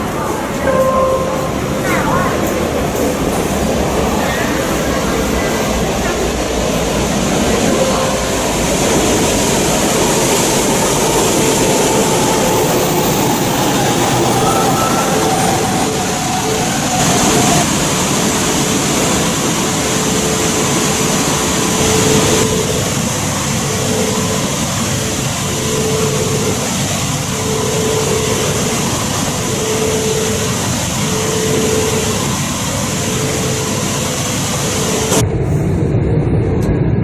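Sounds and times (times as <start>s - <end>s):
train rushing noise: 0.0s - 37.0s
low rumble: 35.2s - 37.0s.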